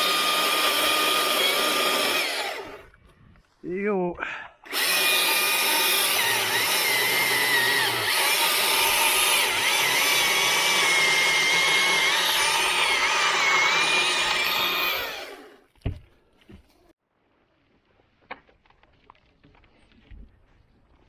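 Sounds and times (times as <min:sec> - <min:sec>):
chainsaw cutting wood: 0:00.0 - 0:02.9, 0:04.7 - 0:15.7.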